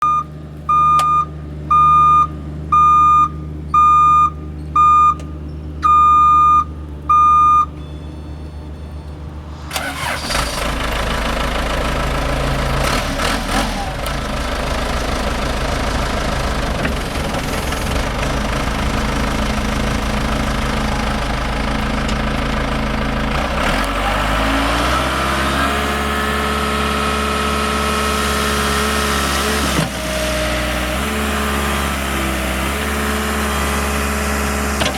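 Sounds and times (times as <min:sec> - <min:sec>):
high warning beeps: 0:00.0 - 0:10.2
diesel engine starting and running: 0:00.0 - 0:34.9.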